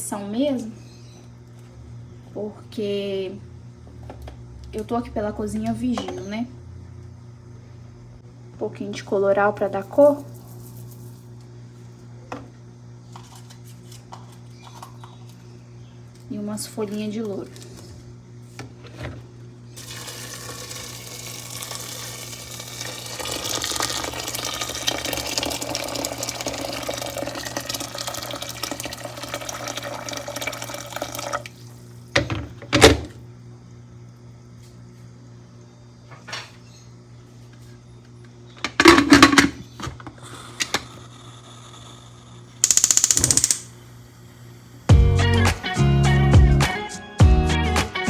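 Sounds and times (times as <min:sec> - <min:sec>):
tap running water into a pot: 0:19.8 - 0:31.6
cookware knocking and clattering: 0:38.7 - 0:39.6.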